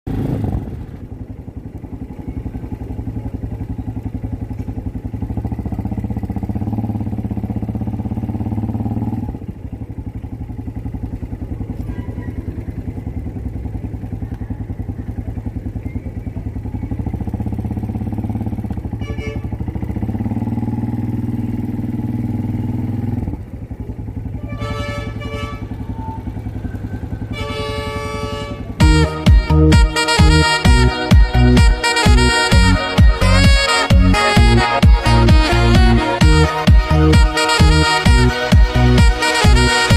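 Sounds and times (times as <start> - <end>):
motorcycle engine revving: 0.0 - 39.9
music with clear tones: 28.8 - 39.9.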